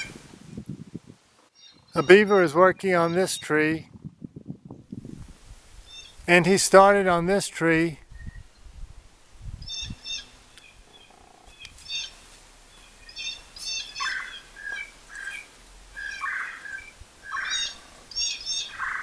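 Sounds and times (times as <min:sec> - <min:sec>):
high bird chirps: 0:01.5 - 0:02.4, 0:05.8 - 0:06.2, 0:09.6 - 0:19.0
harsh bird calls: 0:01.5 - 0:03.8, 0:05.8 - 0:06.2, 0:09.6 - 0:19.0.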